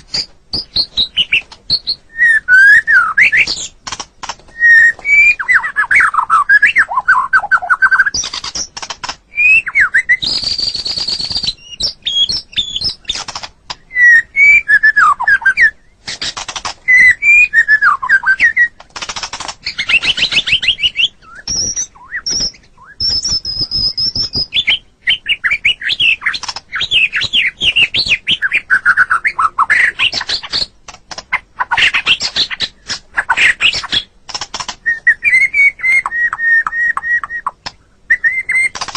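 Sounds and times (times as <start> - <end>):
songbird singing trills and whistles: 0.0 - 38.9.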